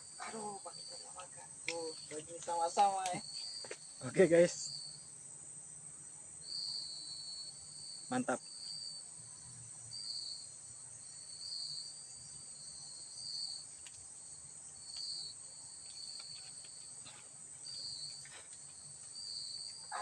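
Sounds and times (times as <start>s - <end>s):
insect high chirp: 0.0s - 20.0s
insect high-pitched drone: 0.0s - 20.0s
faint ticks: 13.7s - 14.0s, 14.8s - 15.2s, 15.8s - 19.9s.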